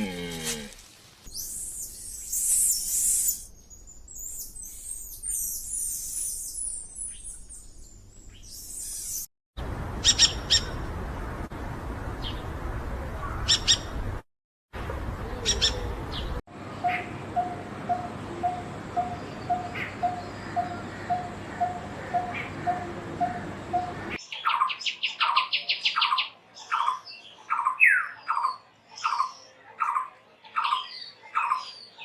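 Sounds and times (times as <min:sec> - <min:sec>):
birds chirping high-pitched: 0:01.3 - 0:09.3, 0:10.0 - 0:10.8, 0:15.2 - 0:32.0.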